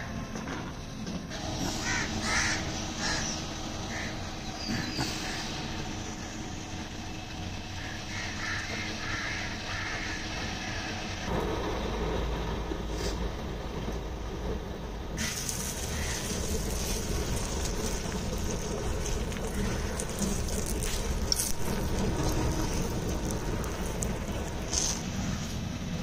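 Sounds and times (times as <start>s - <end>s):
steady low rumble: 0.0s - 26.0s
bread sizzling in oil: 15.2s - 25.4s.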